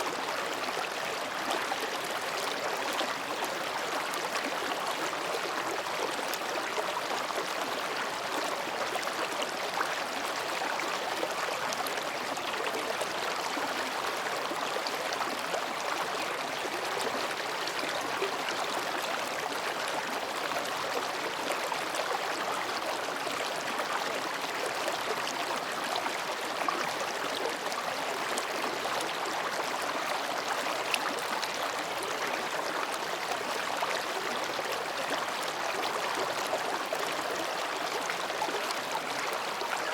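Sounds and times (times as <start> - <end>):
stream babbling over rocks: 0.0 - 39.9.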